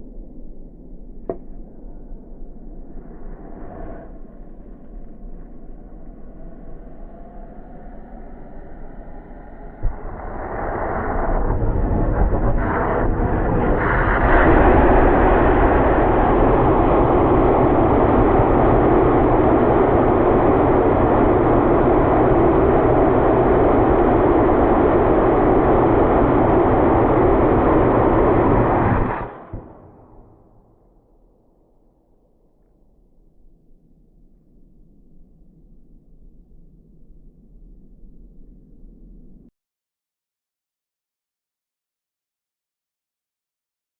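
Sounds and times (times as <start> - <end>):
rocket motor firing: 13.0 - 30.6.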